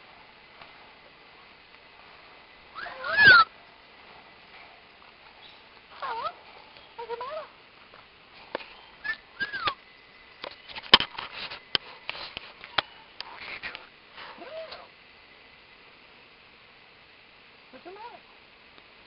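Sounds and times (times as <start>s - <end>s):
parrot squawking: 2.8s - 3.5s, 5.9s - 6.4s, 7.0s - 7.5s.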